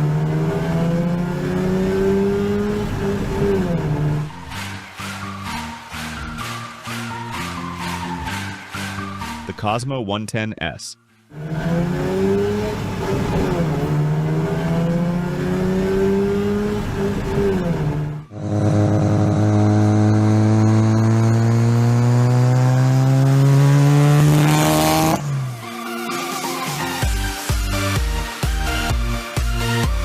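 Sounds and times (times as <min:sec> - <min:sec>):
car engine under load: 0:00.0 - 0:04.4, 0:11.4 - 0:25.5.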